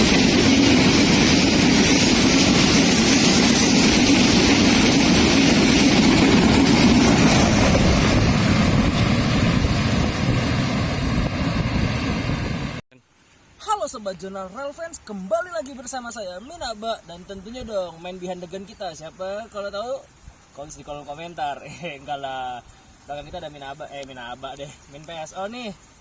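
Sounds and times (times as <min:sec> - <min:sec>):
train rumbling past: 0:00.0 - 0:12.8.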